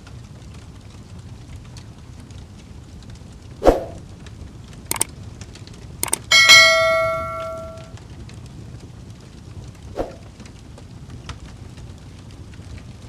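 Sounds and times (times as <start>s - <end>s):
fire crackling and hissing: 0.0s - 6.0s, 7.9s - 13.0s
metallic clang ringing: 6.0s - 7.9s
sharp knock: 6.0s - 7.9s.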